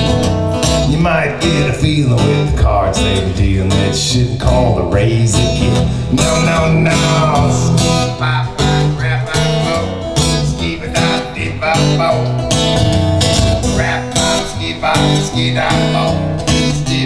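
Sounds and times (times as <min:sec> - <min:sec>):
bass notes: 0:00.0 - 0:17.0
guitar playing: 0:00.0 - 0:17.0.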